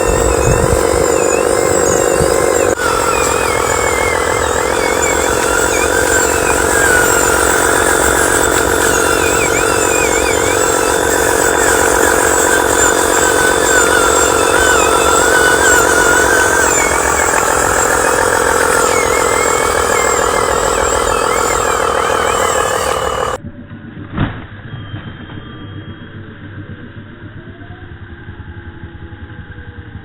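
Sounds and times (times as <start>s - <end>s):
electric motor and gears whirring: 0.0s - 23.4s.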